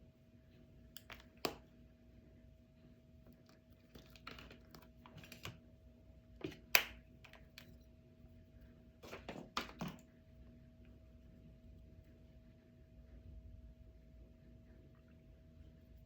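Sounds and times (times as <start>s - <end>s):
faint steady hum: 0.0s - 16.0s
small objects clicking and tapping: 0.9s - 1.6s, 3.3s - 5.6s.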